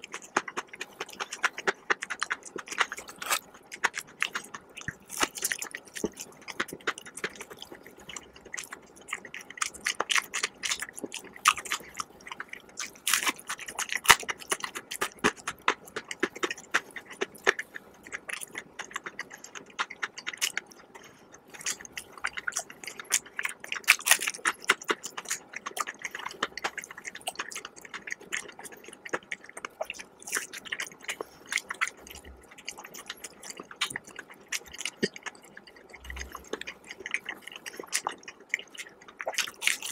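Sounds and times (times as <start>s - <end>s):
crunchy chewing: 0.0s - 39.9s.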